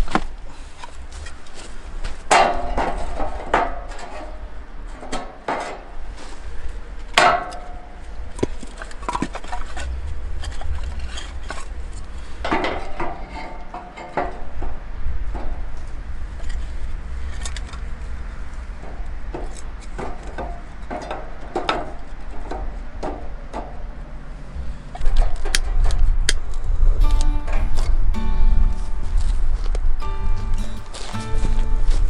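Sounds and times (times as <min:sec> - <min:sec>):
sharp ringing strikes: 0:27.0 - 0:32.0.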